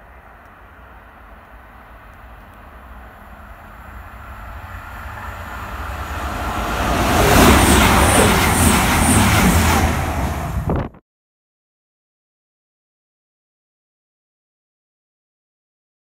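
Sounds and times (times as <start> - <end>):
train rumbling past: 0.0 - 10.9
train wheels clicking: 5.8 - 10.2.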